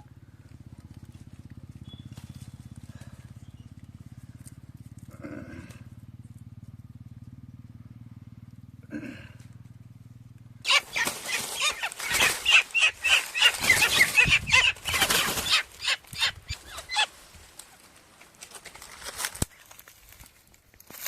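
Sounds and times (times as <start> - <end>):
fluttering wing beats: 0.0 - 5.8, 10.7 - 20.2
quail chirping: 10.6 - 17.9.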